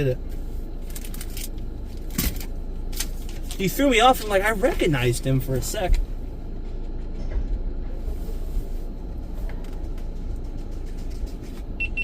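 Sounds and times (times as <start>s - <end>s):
car running from inside cabin: 0.0s - 12.0s.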